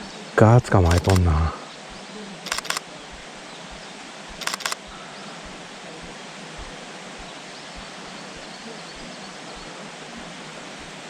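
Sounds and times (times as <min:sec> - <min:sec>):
camera shutter clicks: 0:00.8 - 0:01.3, 0:02.5 - 0:02.8, 0:04.4 - 0:04.8.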